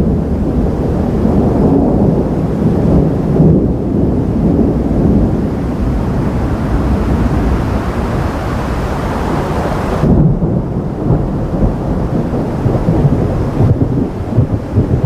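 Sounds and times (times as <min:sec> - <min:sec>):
thunder rumbling: 0:00.0 - 0:15.0.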